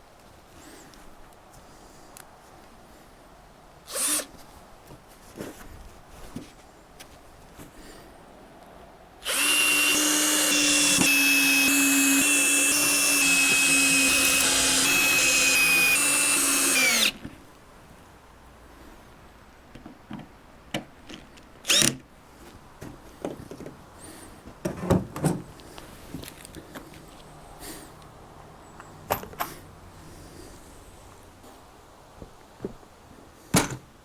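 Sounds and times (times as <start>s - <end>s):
power drill running: 3.9s - 4.3s, 9.2s - 17.2s.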